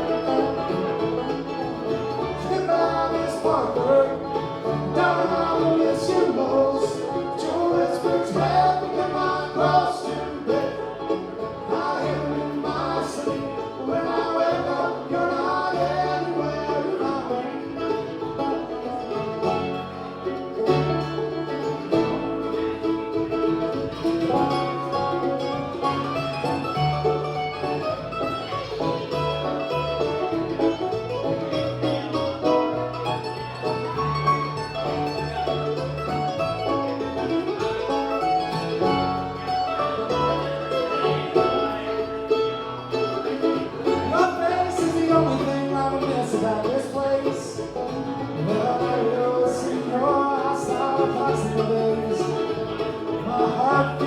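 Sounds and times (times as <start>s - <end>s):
banjo: 0.0s - 54.0s
bass line: 0.0s - 54.0s
guitar: 0.0s - 54.0s.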